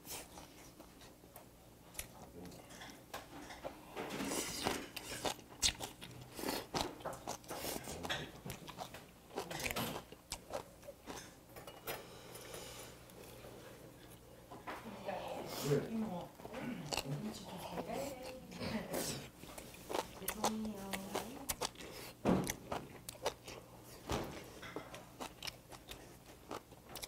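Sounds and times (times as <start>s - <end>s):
person chewing with crunches: 1.9s - 11.4s, 15.5s - 27.0s.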